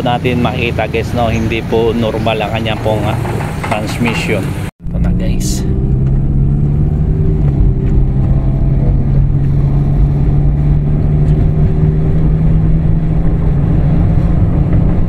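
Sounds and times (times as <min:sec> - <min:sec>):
car engine accelerating: 0:00.0 - 0:15.0
transmission slamming into gear: 0:01.8 - 0:09.4.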